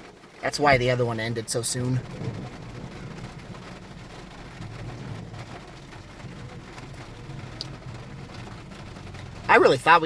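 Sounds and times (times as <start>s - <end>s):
rain on a car roof inside: 0.0s - 10.0s.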